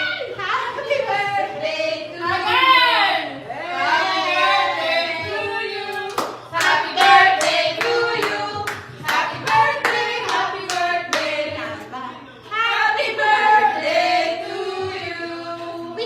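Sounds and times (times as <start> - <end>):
voices singing: 0.0 - 16.0
hands clapping: 5.9 - 11.3.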